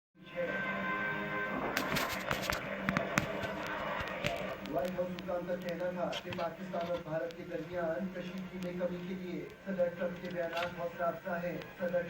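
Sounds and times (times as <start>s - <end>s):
television background music: 0.2s - 12.0s
sharp clicks and taps: 1.9s - 9.6s.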